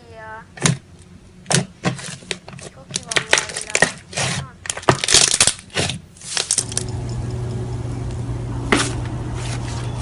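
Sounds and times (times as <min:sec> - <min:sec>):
steady low hum: 0:00.0 - 0:10.0
slime crackling and popping: 0:02.9 - 0:06.7.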